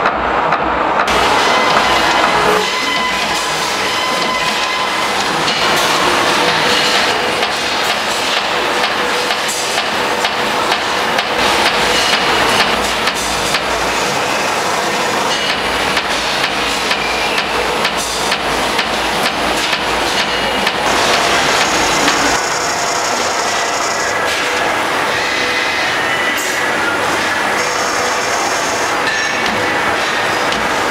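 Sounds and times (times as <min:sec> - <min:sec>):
high machine whine: 0:15.3 - 0:30.9
steady machine hum: 0:15.6 - 0:25.0.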